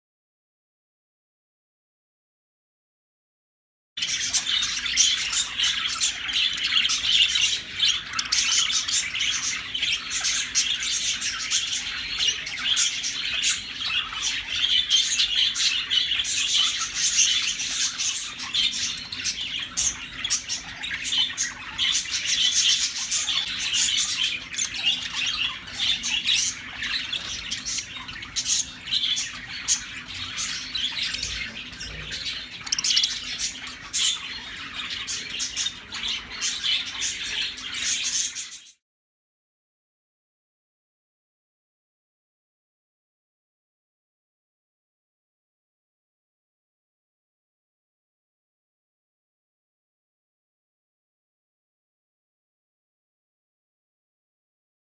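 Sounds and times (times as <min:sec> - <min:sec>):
budgies chattering and chirping: 0:04.0 - 0:38.8.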